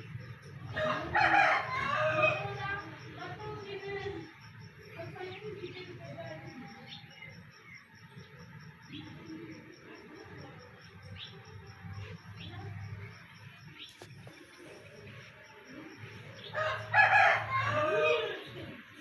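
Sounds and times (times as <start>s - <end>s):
rooster crowing: 0.7s - 2.8s, 16.5s - 18.7s.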